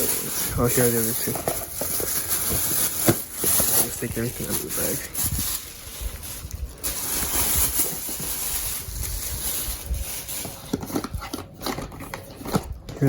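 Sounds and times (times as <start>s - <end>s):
shopping bag rustling: 0.0s - 12.8s.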